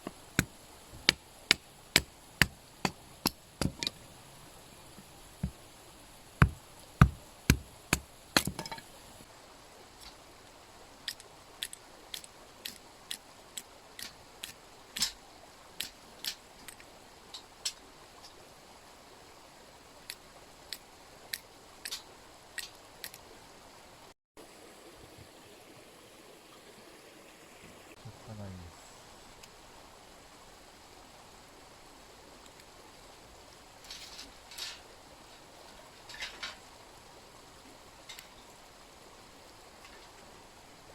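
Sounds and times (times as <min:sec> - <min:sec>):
wood snaps and clicks: 0:00.0 - 0:04.0, 0:06.4 - 0:08.9
axe chopping firewood: 0:00.0 - 0:09.0
mountain stream hissing: 0:00.0 - 0:40.9.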